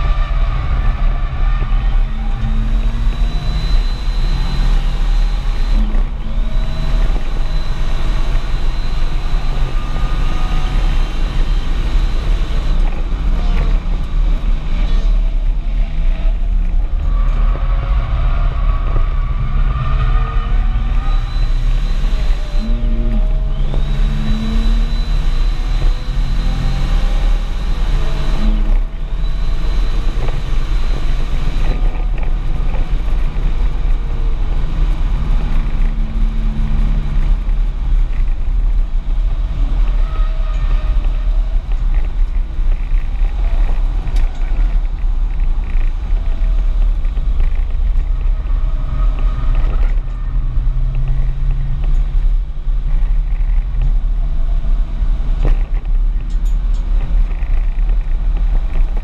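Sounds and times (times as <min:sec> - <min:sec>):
car engine and road noise: 0:00.0 - 0:59.0
thin high whine: 0:19.8 - 0:33.0.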